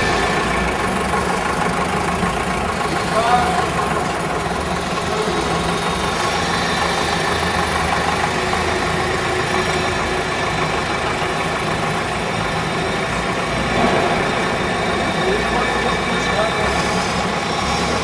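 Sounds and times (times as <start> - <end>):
aircraft piston engines droning: 0.0 - 18.0.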